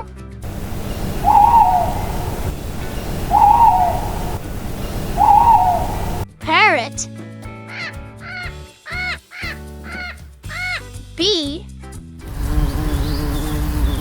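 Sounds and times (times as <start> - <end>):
owl hooting: 0.4 - 6.2
steady background noise: 0.4 - 6.2.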